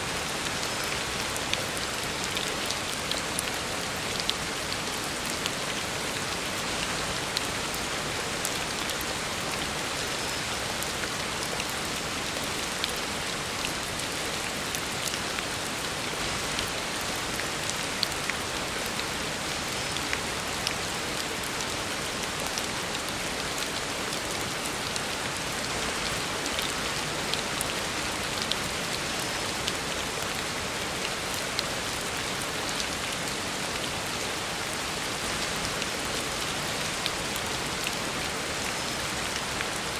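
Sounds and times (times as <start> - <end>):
heavy rain on a road: 0.0 - 39.9.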